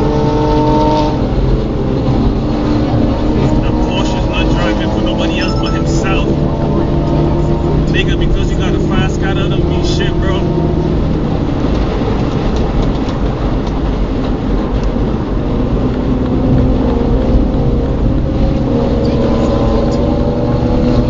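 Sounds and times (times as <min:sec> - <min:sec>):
faint steady engine tone: 0:00.0 - 0:11.6
car engine: 0:00.0 - 0:21.0
road noise: 0:00.0 - 0:21.0.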